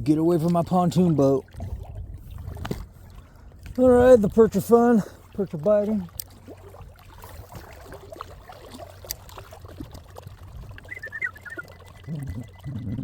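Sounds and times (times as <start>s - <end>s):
water lapping against a hull: 0.0s - 13.0s
faint high chirping: 10.9s - 13.0s.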